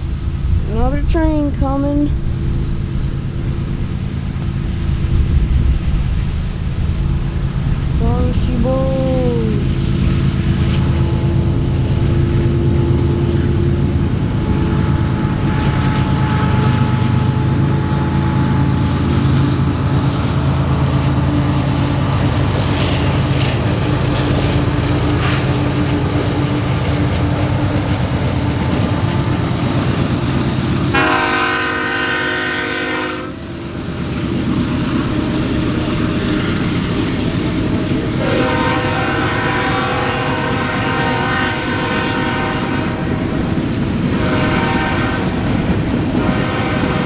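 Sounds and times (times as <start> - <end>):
diesel locomotives passing: 0.0 - 47.0
locomotive air horn: 14.4 - 18.8, 30.9 - 33.4, 38.2 - 43.2, 44.1 - 45.4, 46.2 - 47.0.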